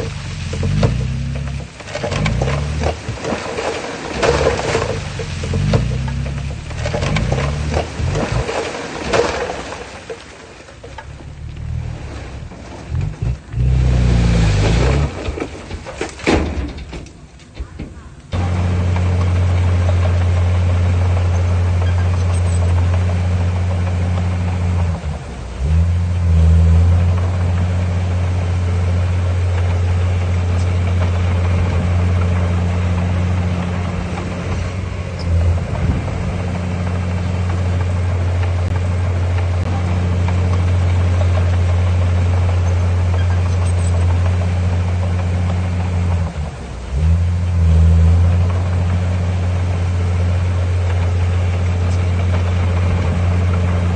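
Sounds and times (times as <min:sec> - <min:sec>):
heavy diesel engine under load: 0:00.0 - 0:53.9.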